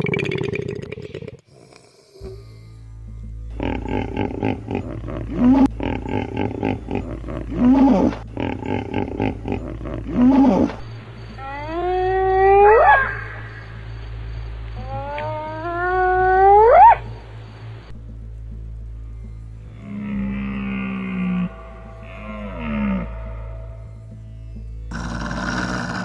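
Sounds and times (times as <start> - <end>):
rhythmic pulsing animal calls: 1.5 - 18.3, 19.0 - 26.0
long rising animal call: 14.8 - 17.0, 19.8 - 23.9.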